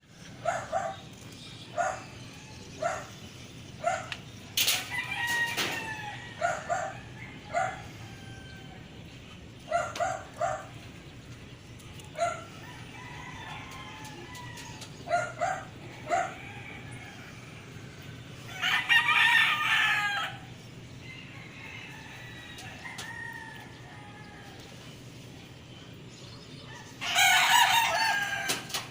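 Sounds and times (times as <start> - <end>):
rooster crowing: 4.6 - 9.0, 12.2 - 24.8, 26.7 - 28.9.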